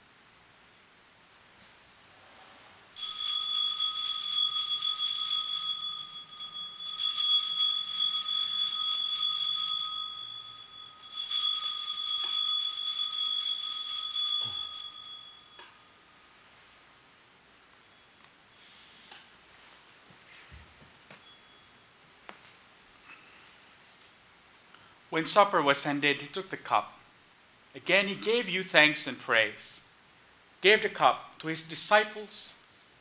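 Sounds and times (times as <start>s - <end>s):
altar bells jingling: 3.0s - 18.9s, 21.2s - 21.9s.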